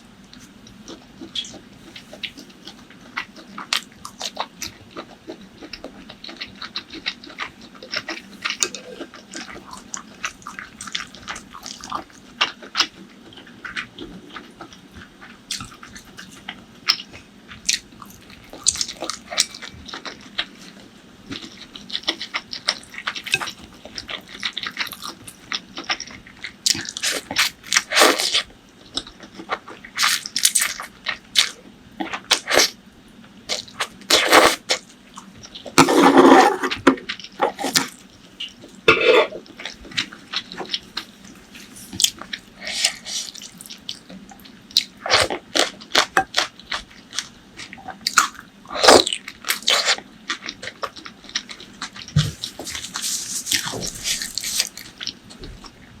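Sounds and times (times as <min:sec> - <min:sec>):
wet chewing and biting: 0:47.6 - 0:55.8.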